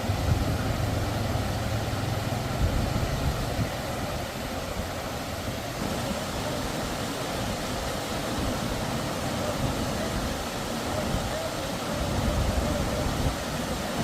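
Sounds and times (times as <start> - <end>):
road noise: 0.0 - 6.0.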